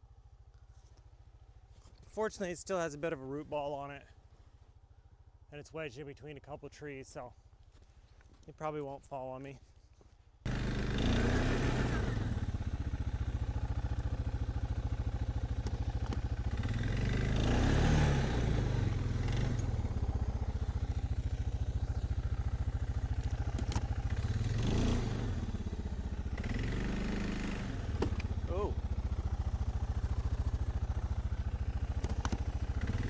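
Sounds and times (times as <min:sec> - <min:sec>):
vehicle engine revving under load: 0:10.5 - 0:33.0.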